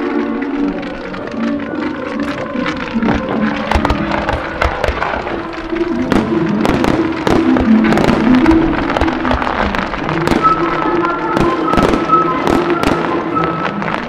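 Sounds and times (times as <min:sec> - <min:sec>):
fireworks popping and banging: 0:00.0 - 0:14.0
music playing: 0:00.0 - 0:14.0.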